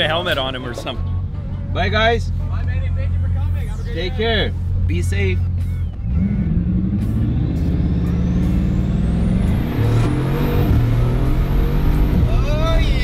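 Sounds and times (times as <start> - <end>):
car engine accelerating: 4.4 - 13.0.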